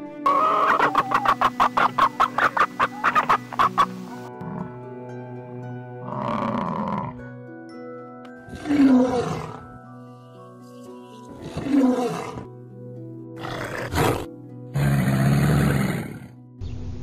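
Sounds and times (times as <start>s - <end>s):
background music: 0.0s - 16.7s
lion roaring: 6.1s - 7.2s, 8.5s - 9.6s, 11.4s - 12.5s, 13.4s - 16.3s.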